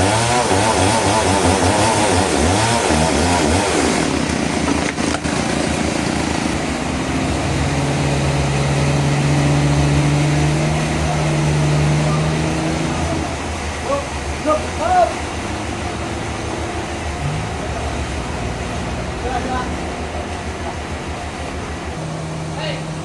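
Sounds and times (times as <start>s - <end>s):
engine-driven saw running: 0.0s - 23.0s.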